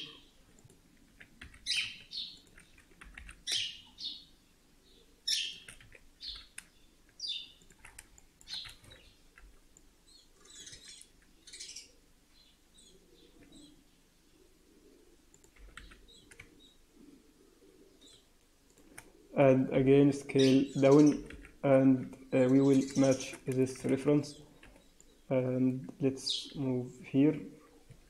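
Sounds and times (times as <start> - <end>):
bird chirping: 1.6 - 7.7, 8.4 - 9.3, 10.0 - 15.1, 15.7 - 16.9, 17.6 - 18.3, 20.3 - 25.6.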